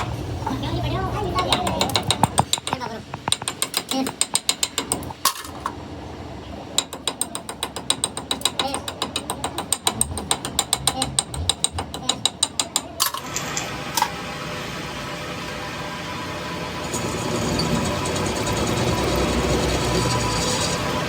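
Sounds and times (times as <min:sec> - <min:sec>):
machine running: 0:13.1 - 0:21.0.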